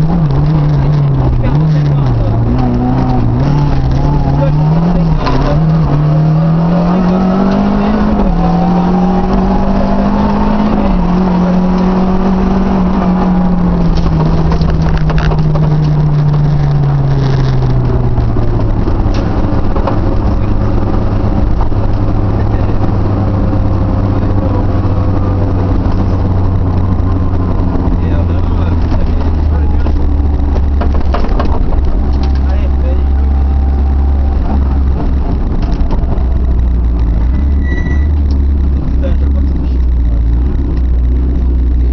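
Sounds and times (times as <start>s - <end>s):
rally car engine revving: 0.0s - 41.9s.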